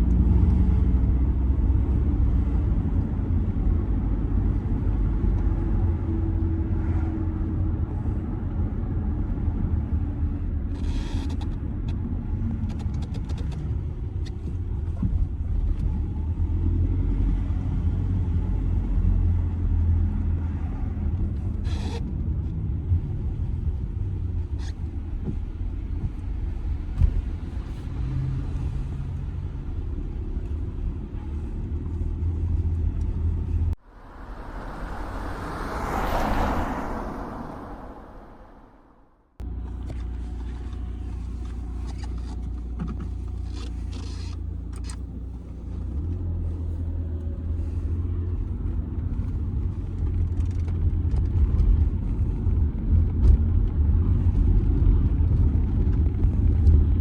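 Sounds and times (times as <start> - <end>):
car engine and road rumble: 0.0 - 57.0
short whoosh: 33.8 - 39.2.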